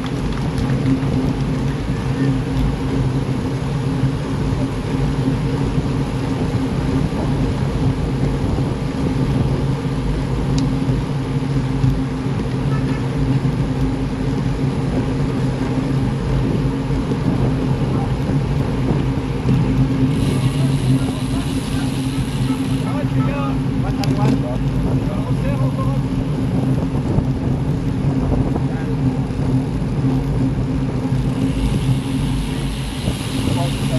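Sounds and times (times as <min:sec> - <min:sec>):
low even hum: 0:00.0 - 0:33.9
road and wind noise: 0:00.0 - 0:33.9.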